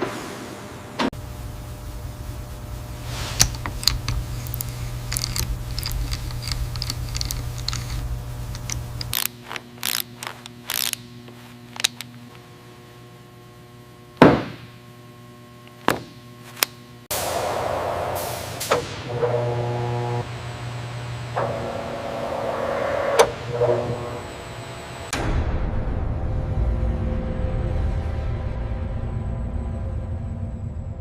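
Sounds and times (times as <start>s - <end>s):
low steady hum: 0.8s - 25.2s.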